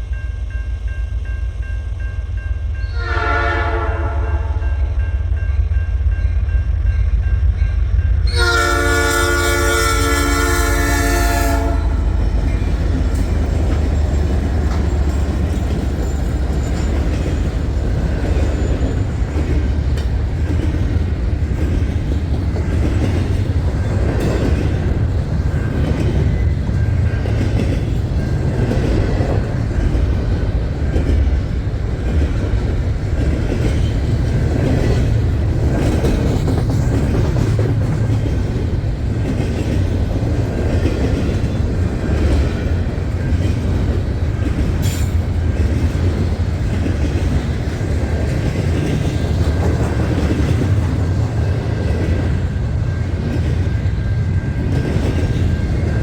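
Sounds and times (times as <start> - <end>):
train rumbling and wheels clattering: 0.0 - 56.0
train horn: 2.8 - 4.9, 8.2 - 12.4.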